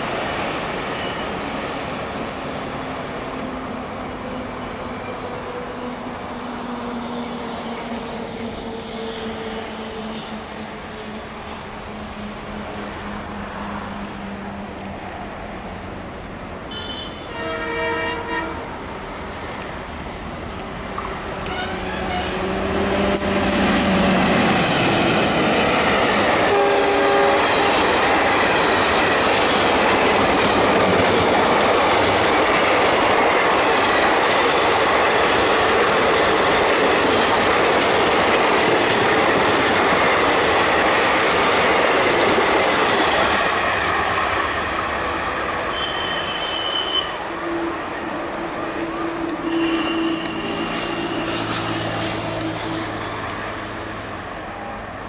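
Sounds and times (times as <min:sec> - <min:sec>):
train horn: 0:16.7 - 0:18.8, 0:21.4 - 0:24.3, 0:26.2 - 0:27.9, 0:45.7 - 0:48.2, 0:48.8 - 0:53.9.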